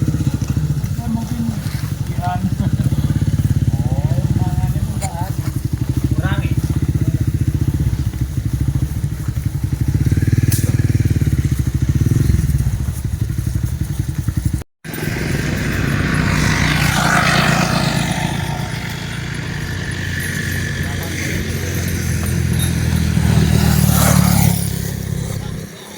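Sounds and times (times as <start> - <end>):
small engine running: 0.0 - 25.9.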